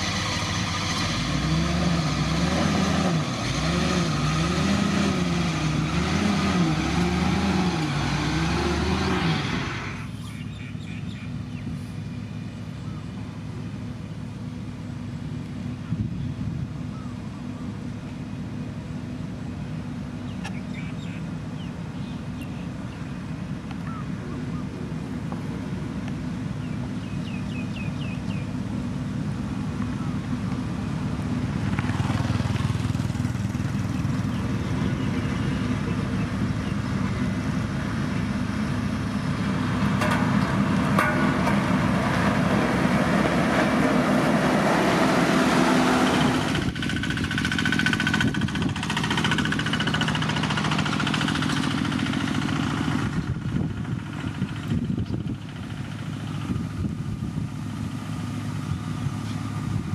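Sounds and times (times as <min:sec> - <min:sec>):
heavy machinery diesel engine: 0:00.0 - 0:59.9
rough grinding noise: 0:39.4 - 0:56.6.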